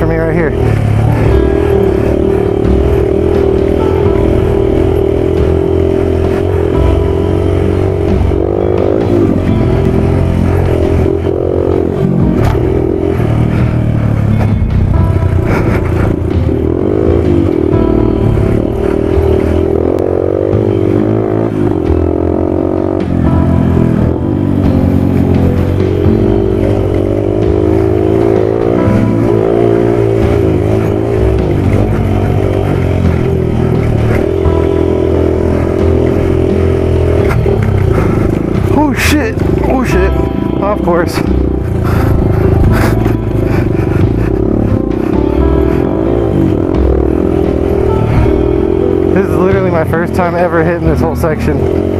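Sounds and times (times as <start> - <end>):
motorcycle engine revving: 0.0 - 51.9
scraping noise: 36.5 - 45.9.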